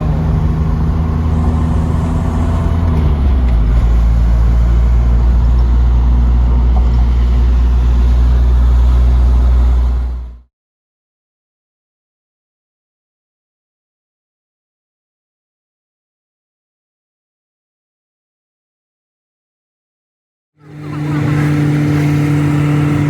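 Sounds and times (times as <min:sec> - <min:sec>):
motor vehicle running: 0:00.0 - 0:10.5, 0:20.6 - 0:23.0.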